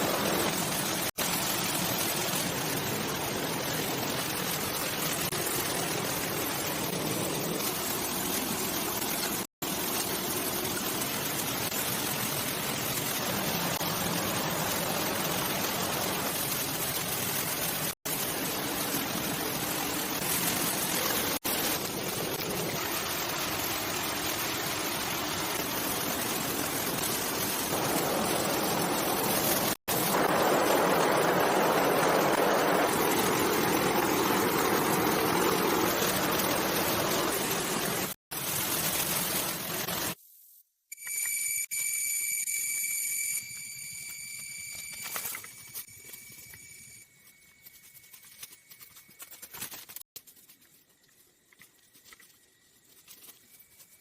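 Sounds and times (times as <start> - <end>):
running water: 0.0 - 40.2.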